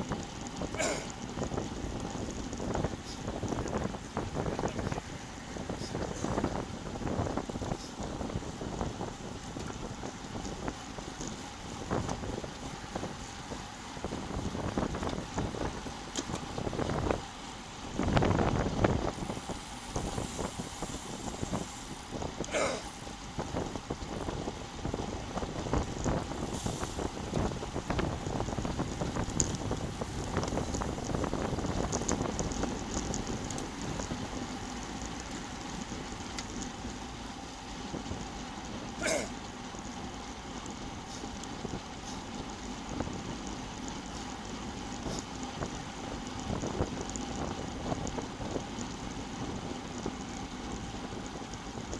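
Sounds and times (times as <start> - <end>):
wind buffeting microphone: 0.0 - 51.9
faint clicks: 31.9 - 34.2.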